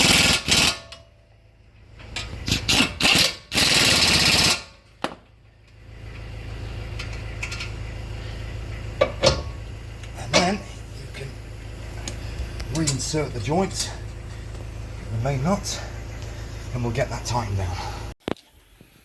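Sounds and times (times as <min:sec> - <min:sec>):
impact wrench rattling: 0:02.1 - 0:05.2
low hum: 0:04.6 - 0:18.2.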